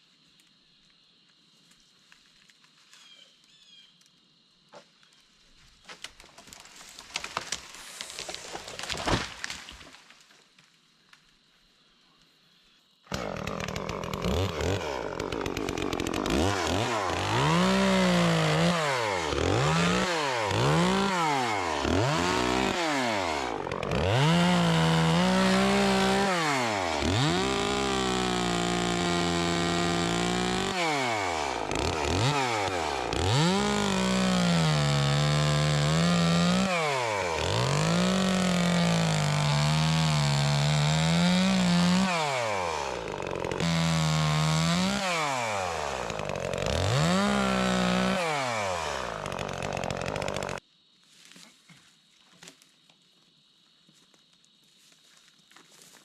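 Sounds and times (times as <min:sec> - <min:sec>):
chainsaw revving and cutting wood: 0:13.1 - 0:50.6.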